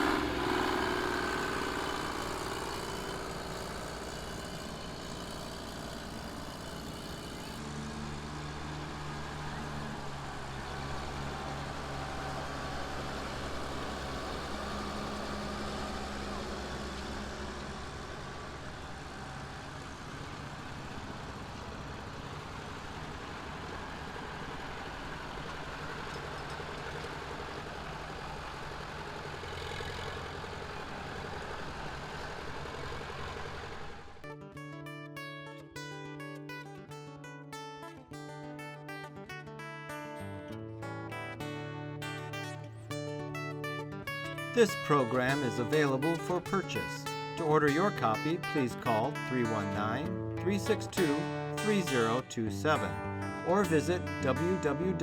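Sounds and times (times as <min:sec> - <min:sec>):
engine idling: 0:00.0 - 0:34.4.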